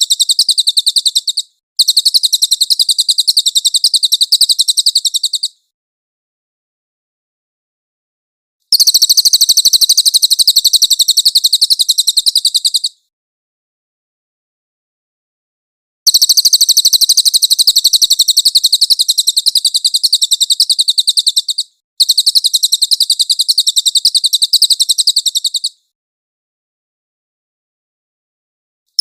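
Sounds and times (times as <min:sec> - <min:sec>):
bird high-pitched trill: 0:00.0 - 0:05.6, 0:08.7 - 0:13.0, 0:16.1 - 0:25.8.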